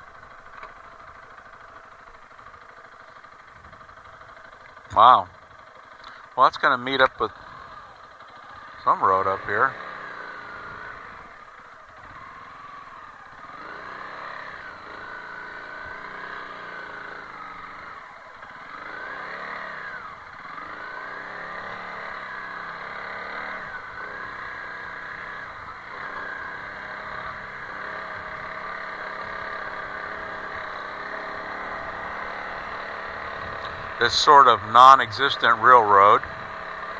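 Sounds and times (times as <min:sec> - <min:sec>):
motorcycle engine revving: 0:00.0 - 0:36.9.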